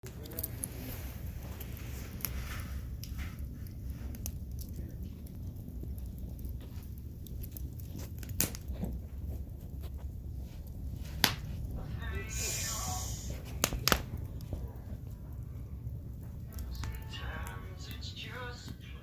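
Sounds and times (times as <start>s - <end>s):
burning wood popping: 0.0s - 19.0s
low steady rumble: 0.0s - 19.0s
wood fire crackling: 0.0s - 19.0s.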